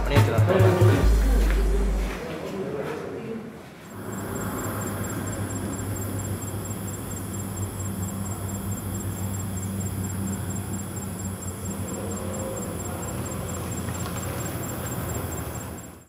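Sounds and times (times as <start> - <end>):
car engine humming: 3.9 - 16.0
faint high-pitched pulsing tone: 3.9 - 16.0.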